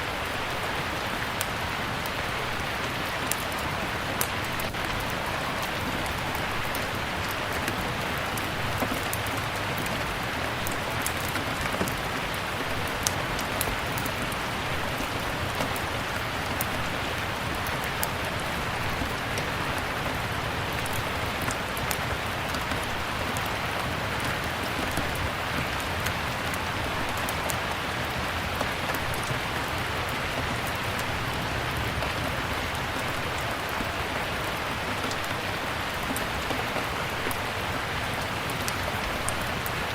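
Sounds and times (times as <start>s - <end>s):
steady rain: 0.0s - 39.9s
wood fire crackling: 2.8s - 20.0s.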